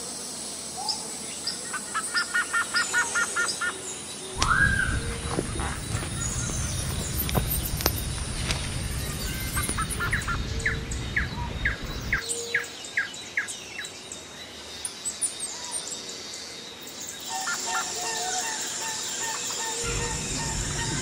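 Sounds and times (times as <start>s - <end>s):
bird chirping: 0.8s - 21.0s
low rumble: 4.4s - 12.2s, 19.8s - 21.0s.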